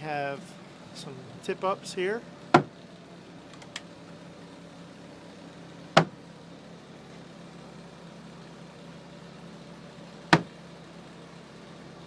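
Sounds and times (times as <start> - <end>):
diesel engine idling: 0.0 - 12.0
sharp knocks: 2.5 - 2.7, 6.0 - 6.2, 10.3 - 10.5.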